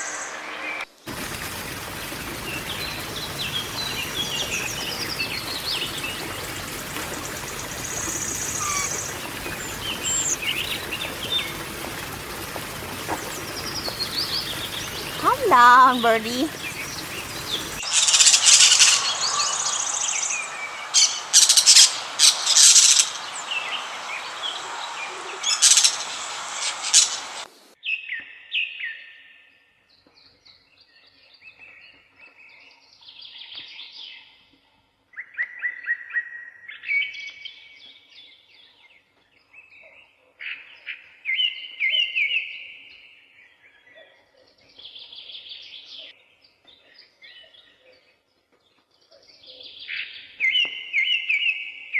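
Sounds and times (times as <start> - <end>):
birds chirping: 2.2 - 27.5
bird whistled calls and trills: 7.2 - 11.5, 16.5 - 27.4.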